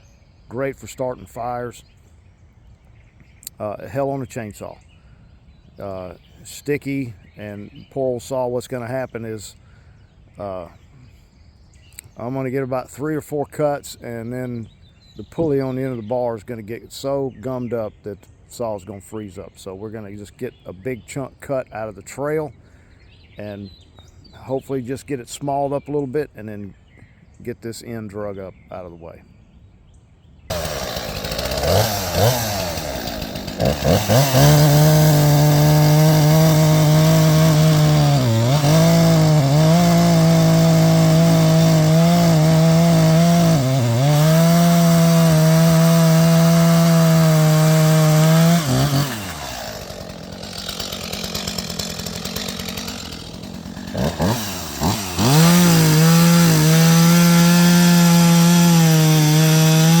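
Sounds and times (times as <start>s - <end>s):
chainsaw cutting wood: 30.5s - 60.0s.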